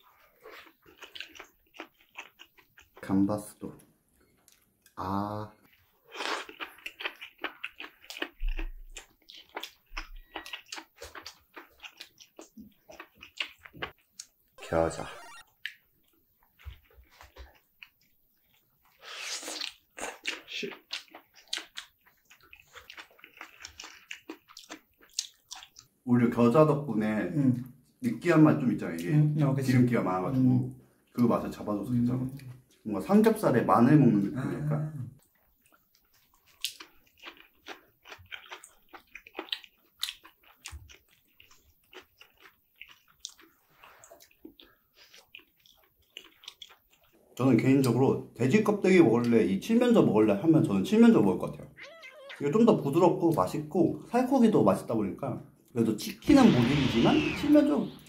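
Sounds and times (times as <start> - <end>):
person chewing with wet smacks: 0.0 - 3.1, 5.6 - 14.5, 15.2 - 26.0, 35.2 - 48.0.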